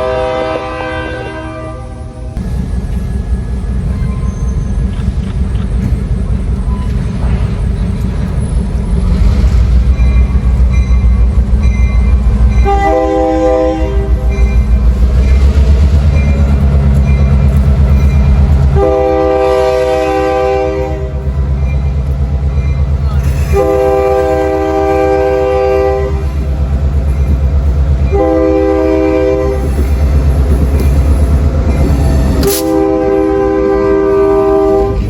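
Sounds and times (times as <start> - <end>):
multi-note air horn blasts: 0.0 - 2.2, 12.6 - 14.2, 18.7 - 21.2, 23.5 - 26.2, 28.1 - 29.6, 32.4 - 35.0
diesel locomotive engine: 0.0 - 35.0.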